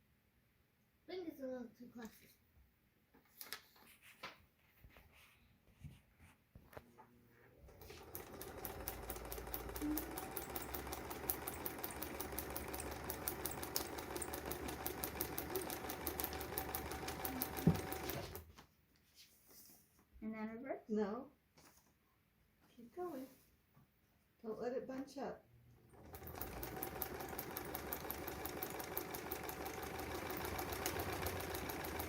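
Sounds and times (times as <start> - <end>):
sewing machine stitching: 7.6 - 18.5, 25.8 - 32.0.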